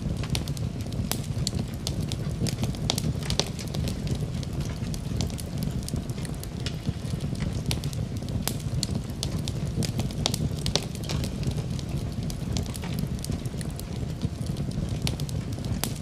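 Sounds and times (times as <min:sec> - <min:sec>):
fire crackling and popping: 0:00.0 - 0:16.0
fire rumbling: 0:00.0 - 0:16.0.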